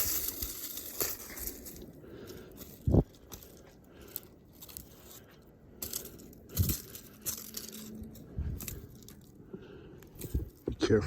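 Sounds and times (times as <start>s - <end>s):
heavy low thuds: 10.3s - 11.0s.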